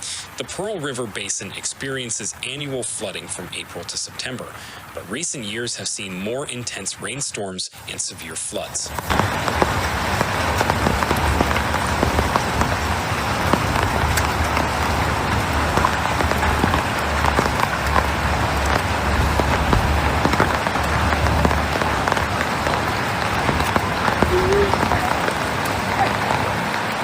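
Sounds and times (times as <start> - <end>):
heavy rain pouring: 0.0 - 27.0
raindrops pattering on surfaces: 0.0 - 27.0.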